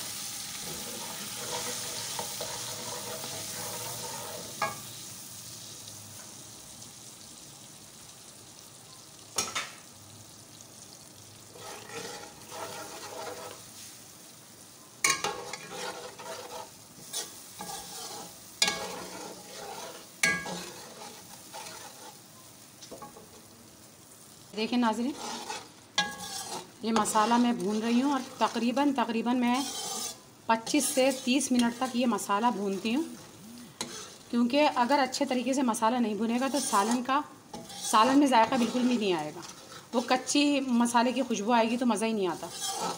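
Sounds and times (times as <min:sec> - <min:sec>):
spices sizzling in hot oil: 0:00.0 - 0:42.9
metal spatula scraping and knocking pan: 0:00.6 - 0:04.8, 0:11.6 - 0:13.6, 0:15.0 - 0:22.2, 0:25.1 - 0:28.6, 0:29.4 - 0:32.1, 0:33.8 - 0:34.2, 0:36.3 - 0:40.4, 0:42.3 - 0:42.9.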